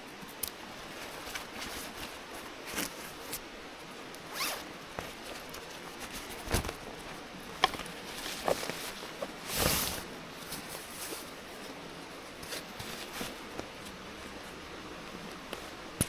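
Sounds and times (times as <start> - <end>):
faint steady hiss: 0.0 - 16.0
zipper being pulled: 4.3 - 4.6.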